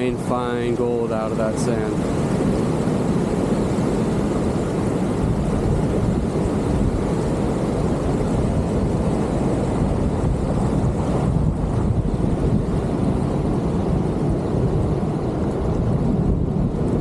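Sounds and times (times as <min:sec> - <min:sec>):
ocean surf: 0:00.0 - 0:17.0
wind on microphone: 0:00.0 - 0:17.0.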